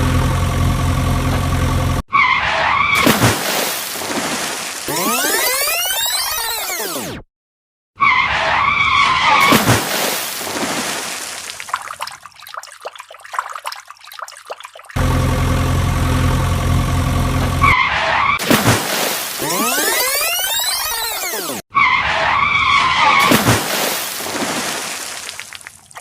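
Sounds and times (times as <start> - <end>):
engine hum: 0.0 - 2.0, 15.0 - 17.8.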